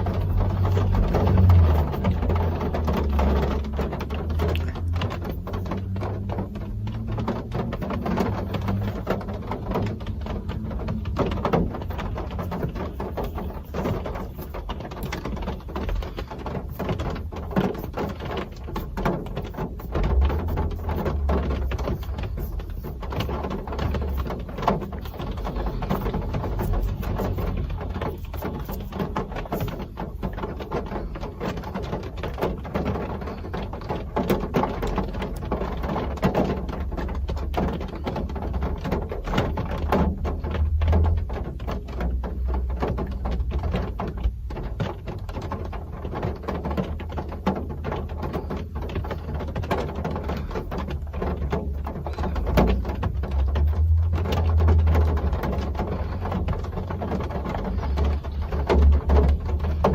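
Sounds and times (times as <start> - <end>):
rain pattering: 0.0 - 59.9
low rumble: 51.8 - 59.9.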